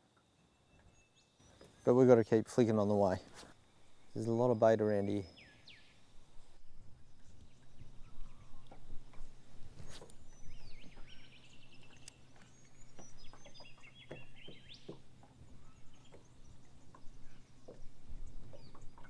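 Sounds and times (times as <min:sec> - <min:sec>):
birds chirping and trilling: 0:03.8 - 0:19.0.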